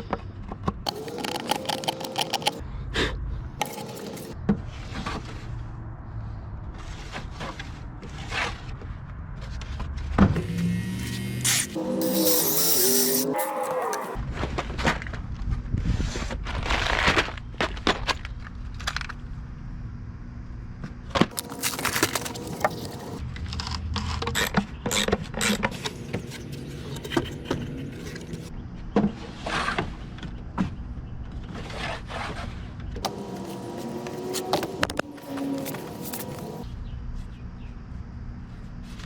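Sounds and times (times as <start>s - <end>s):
metal sockets clinking: 0.9s - 2.6s.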